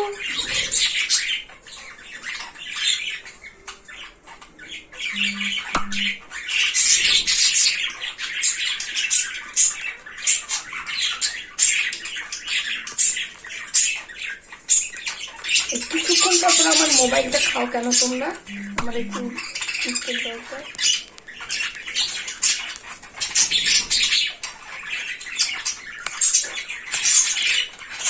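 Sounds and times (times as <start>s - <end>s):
cockatiels squawking: 0.0s - 28.0s
short low beeps: 5.2s - 6.2s.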